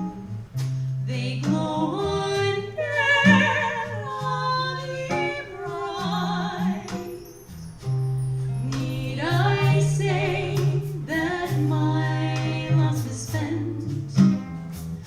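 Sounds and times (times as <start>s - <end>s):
guitar accompaniment: 0.0s - 15.0s
jazz band playing: 0.0s - 15.0s.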